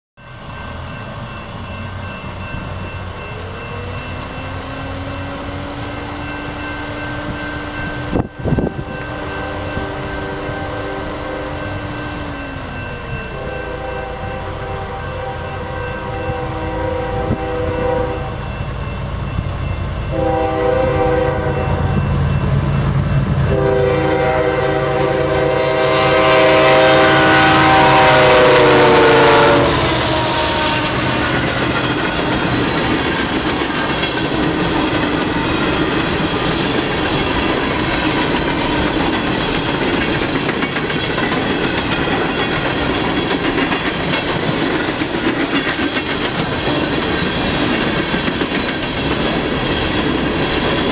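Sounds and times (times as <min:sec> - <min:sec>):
hopper cars rumbling: 0:00.2 - 0:50.9
locomotive air horn blasts: 0:06.8 - 0:12.2, 0:13.3 - 0:18.6, 0:20.1 - 0:22.1, 0:23.5 - 0:31.5
train wheels clacking over rails: 0:26.4 - 0:50.9.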